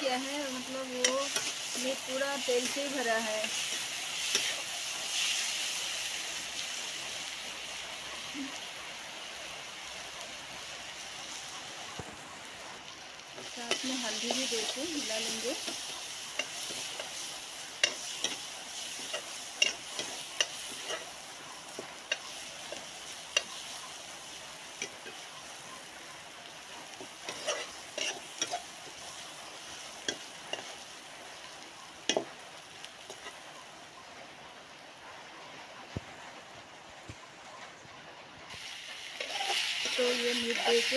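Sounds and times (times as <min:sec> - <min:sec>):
onions sizzling in hot oil: 0:00.0 - 0:36.7, 0:38.5 - 0:40.9
spatula scraping a pan: 0:13.4 - 0:21.2, 0:27.2 - 0:28.7, 0:39.2 - 0:40.9.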